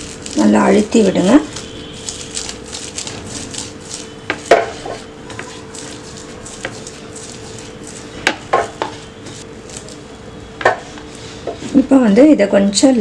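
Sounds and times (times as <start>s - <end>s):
dough log knocking on hard surface: 4.3s - 5.0s, 8.2s - 9.0s.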